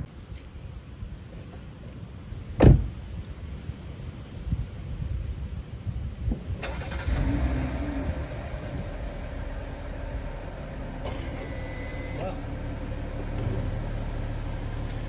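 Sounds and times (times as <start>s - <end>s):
car engine starting and idling: 6.3s - 15.0s.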